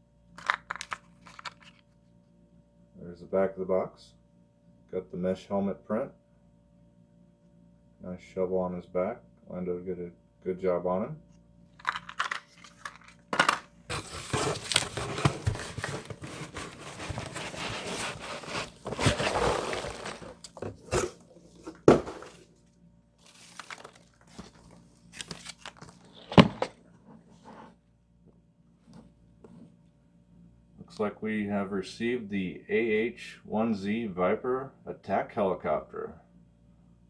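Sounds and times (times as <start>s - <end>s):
packing material crinkling: 11.8s - 21.2s, 23.2s - 26.4s.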